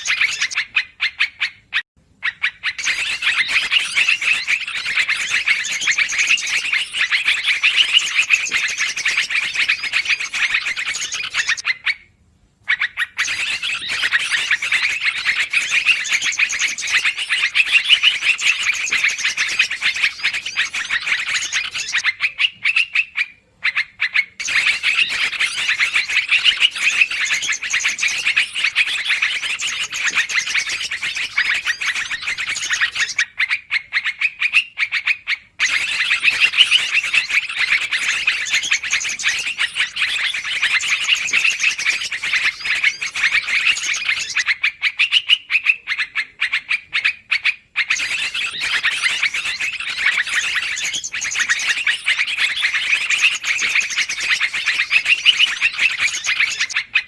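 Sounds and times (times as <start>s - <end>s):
bulbuls chattering: 35.6s - 44.5s.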